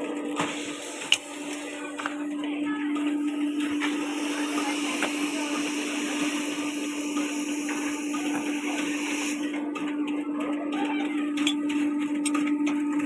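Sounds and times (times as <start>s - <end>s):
small electric motor humming: 0.6s - 9.9s
loud hissing rush: 3.3s - 9.5s.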